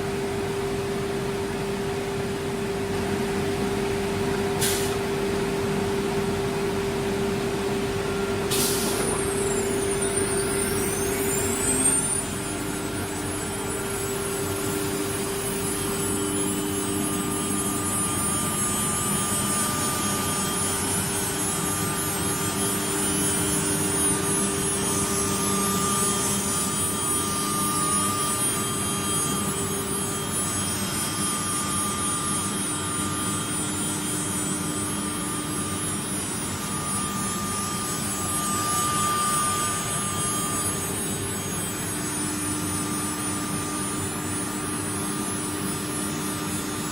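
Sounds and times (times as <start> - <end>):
router spindle whine: 6.7 - 46.9
machine hiss: 8.4 - 34.0.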